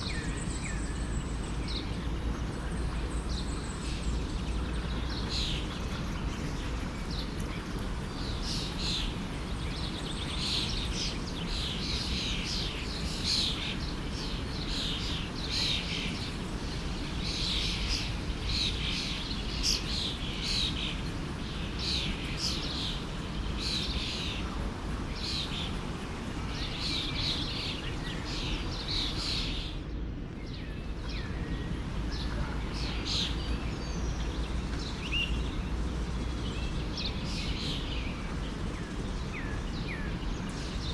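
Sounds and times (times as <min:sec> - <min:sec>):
songbirds chirping: 0:00.0 - 0:40.9
stream flowing: 0:13.9 - 0:29.4, 0:30.9 - 0:40.9.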